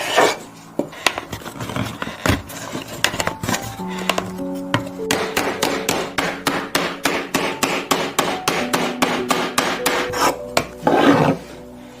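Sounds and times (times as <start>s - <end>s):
faint background music: 0.0s - 12.0s
hammer striking wood: 4.0s - 10.8s.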